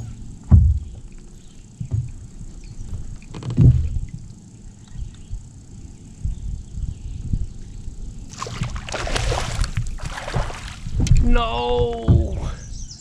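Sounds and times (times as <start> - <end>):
wind rumble on microphone: 0.0 - 13.0
water splashing beside kayak: 8.3 - 12.5.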